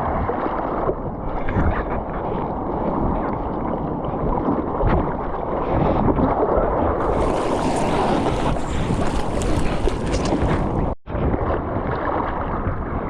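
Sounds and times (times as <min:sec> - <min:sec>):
ocean surf rushing: 0:07.0 - 0:11.0
wind buffeting microphone: 0:07.0 - 0:13.0.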